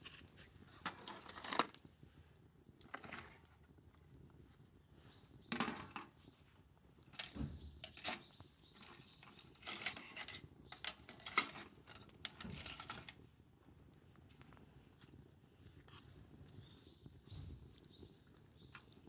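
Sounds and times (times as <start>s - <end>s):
small hard objects knocking and scraping: 0.0s - 1.9s, 2.8s - 3.8s, 5.4s - 6.3s, 7.0s - 13.2s.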